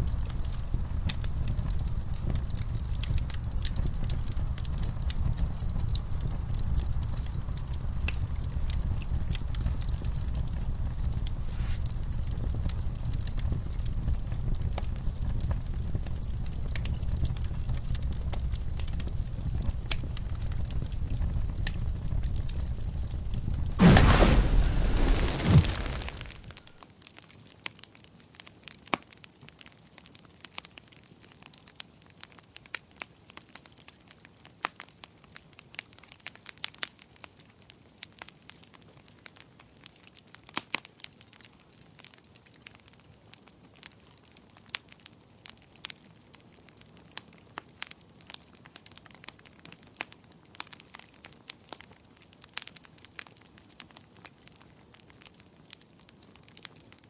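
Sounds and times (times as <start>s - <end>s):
faint steady hiss: 23.8s - 26.8s
wood fire crackling: 23.8s - 26.8s.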